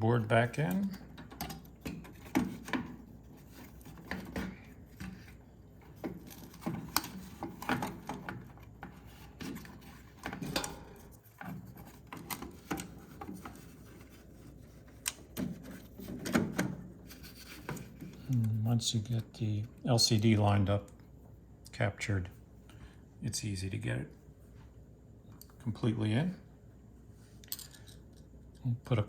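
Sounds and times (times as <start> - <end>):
clicks and knocks of plastic parts: 0.7 - 14.1.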